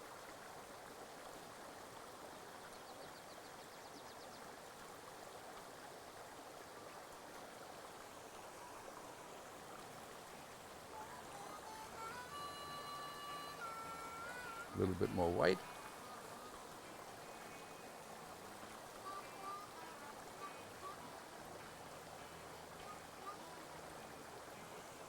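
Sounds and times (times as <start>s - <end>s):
stream flowing: 0.0s - 25.0s
high held tones: 11.0s - 15.5s.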